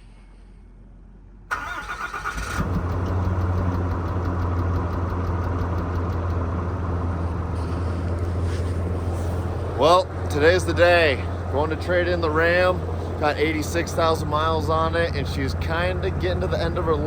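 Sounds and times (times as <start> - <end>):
starter cranking engine: 1.5 - 8.4
truck engine idling: 1.5 - 17.0.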